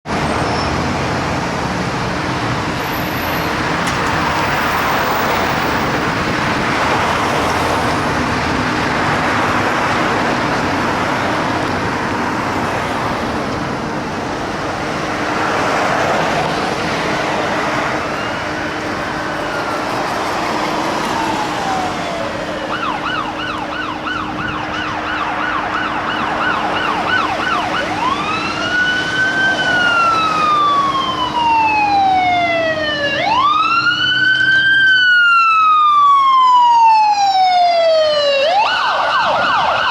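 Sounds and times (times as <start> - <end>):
road noise: 0.0 - 39.9
electronic siren wailing and yelping: 16.1 - 39.9.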